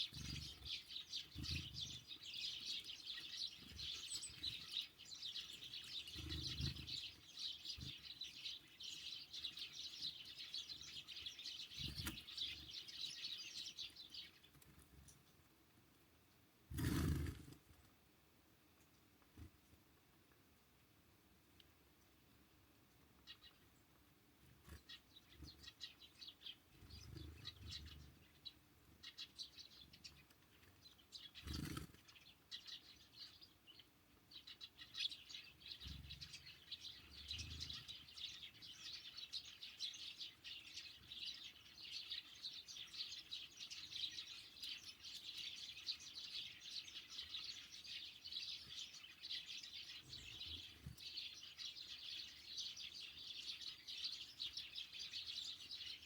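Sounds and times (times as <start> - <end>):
small songbirds chirping: 0.0 - 17.8, 18.5 - 56.0.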